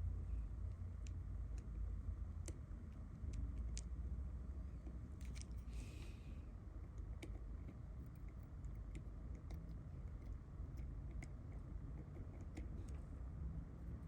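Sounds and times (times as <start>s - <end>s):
low background rumble: 0.0s - 14.0s
light clicks and taps: 2.4s - 4.0s.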